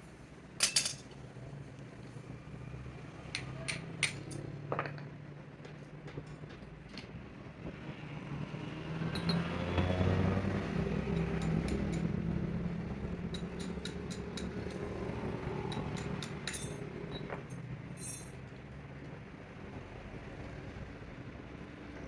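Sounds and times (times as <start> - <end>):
vehicle engine passing by: 7.6 - 16.9.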